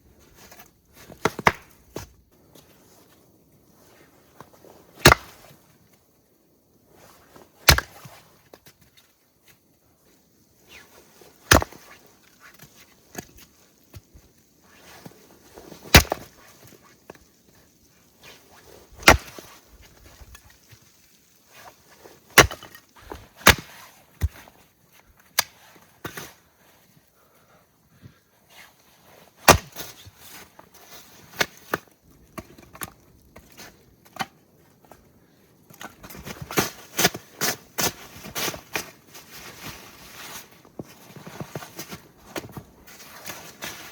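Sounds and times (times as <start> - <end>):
axe chopping firewood: 1.1 - 2.1, 5.0 - 5.4, 7.6 - 8.1, 11.5 - 11.8, 15.9 - 16.3, 19.0 - 19.5, 22.3 - 24.4, 29.4 - 29.9.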